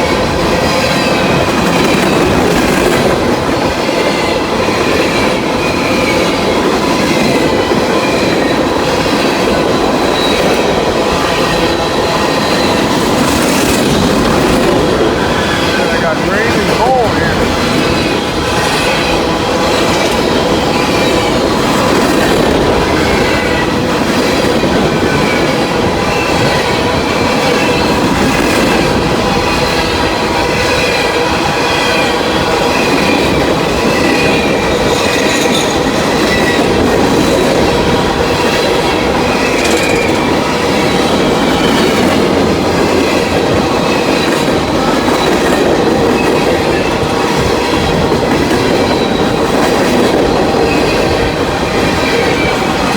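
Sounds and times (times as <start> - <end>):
freight train rumbling past: 0.0 - 52.9
steel wheels squealing: 3.6 - 23.8, 32.7 - 47.0, 48.5 - 52.9.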